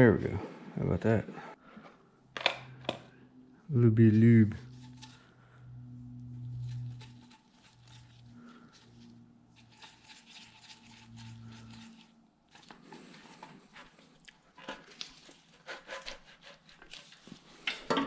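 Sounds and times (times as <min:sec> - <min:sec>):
low hum: 0:02.0 - 0:13.1
hand tools clicking and scraping: 0:09.6 - 0:18.0.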